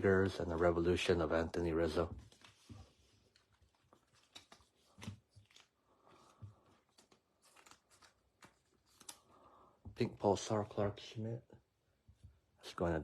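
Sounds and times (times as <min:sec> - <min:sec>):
cards rustling: 0:01.9 - 0:09.5.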